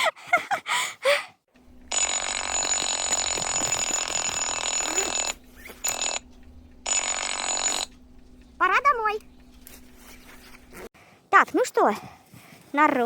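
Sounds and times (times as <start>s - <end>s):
electronic ringing tone: 1.6s - 10.8s.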